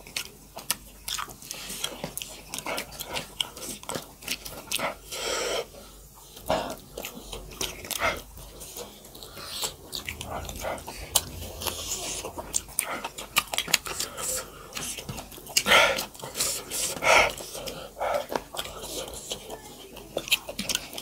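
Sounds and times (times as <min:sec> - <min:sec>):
wet chewing and lip-smacking: 0:00.0 - 0:05.1, 0:05.7 - 0:11.8, 0:12.5 - 0:21.0
breathy sound: 0:09.4 - 0:14.6.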